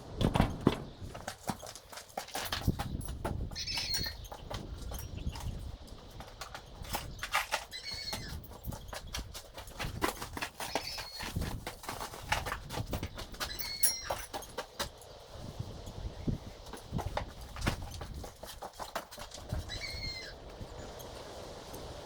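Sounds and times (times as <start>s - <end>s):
short high squeaks: 3.6s - 4.3s, 7.4s - 8.5s, 13.4s - 14.4s, 19.5s - 20.4s.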